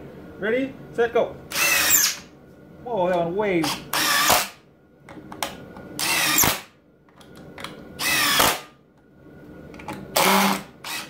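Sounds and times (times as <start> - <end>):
impact driver driving screws: 1.5 - 2.2, 3.9 - 4.6, 6.0 - 6.7, 8.0 - 8.7, 10.2 - 11.0.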